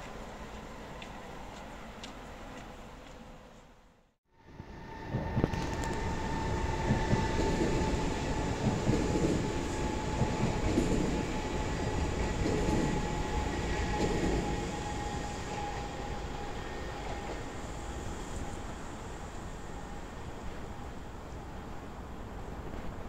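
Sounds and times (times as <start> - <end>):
train wheels rushing on rails: 4.7 - 23.0.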